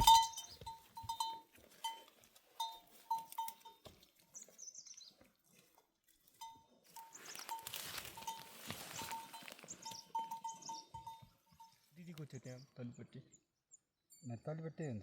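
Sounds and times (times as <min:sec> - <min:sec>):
livestock bell clinking: 0:00.0 - 0:04.0, 0:06.2 - 0:12.6, 0:14.1 - 0:15.0.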